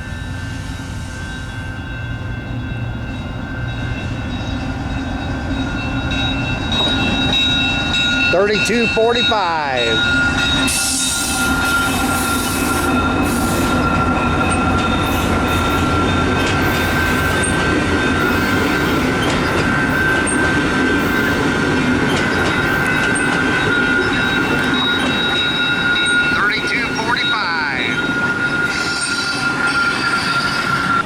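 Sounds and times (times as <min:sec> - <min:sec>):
train wheels rumbling on rail: 0:00.0 - 0:31.0
high-pitched wheel squeal: 0:27.8 - 0:31.0.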